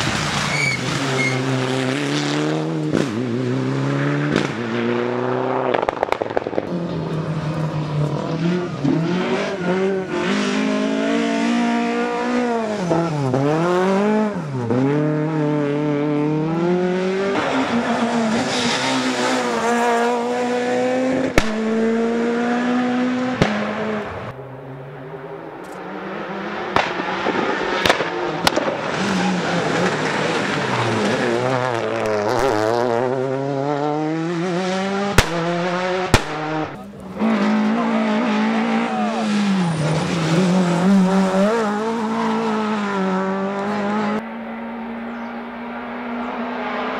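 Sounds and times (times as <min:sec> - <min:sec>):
rally car engines revving: 0:00.0 - 0:46.9
sharp cracks: 0:05.7 - 0:06.9, 0:26.7 - 0:29.0.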